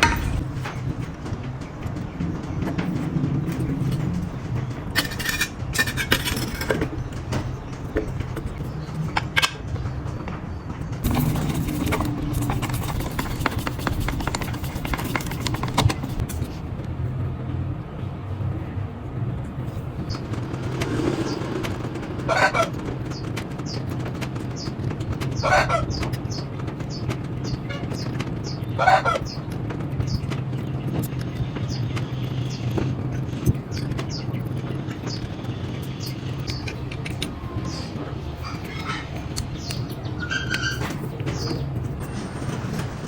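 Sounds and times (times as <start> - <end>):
steady low hum: 0.0 - 40.3.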